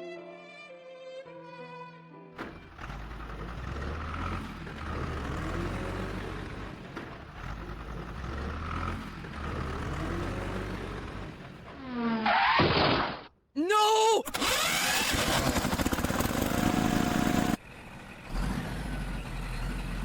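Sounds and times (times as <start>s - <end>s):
heavy vehicle engine rumbling: 2.4s - 12.2s, 16.0s - 20.0s.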